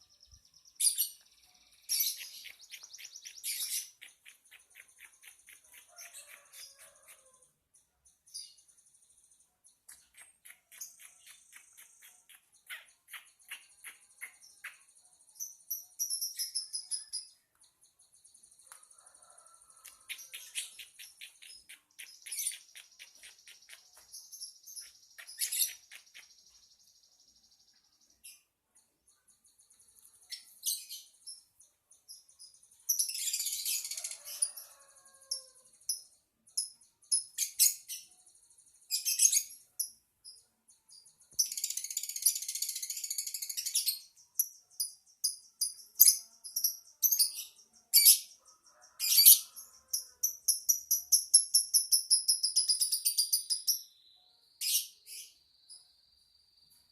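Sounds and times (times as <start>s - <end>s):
lovebird chirps and trills: 0.0s - 56.9s.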